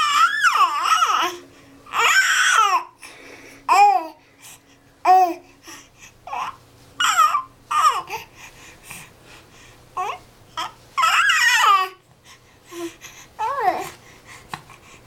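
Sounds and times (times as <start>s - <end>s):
baby babbling squeals: 0.0s - 2.9s, 6.3s - 8.1s, 11.0s - 12.0s.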